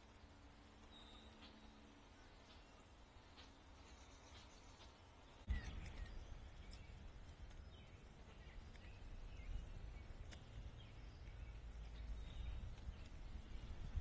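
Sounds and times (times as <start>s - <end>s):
faint bird chirps: 0.0s - 14.0s
steady low rumble: 0.0s - 14.0s.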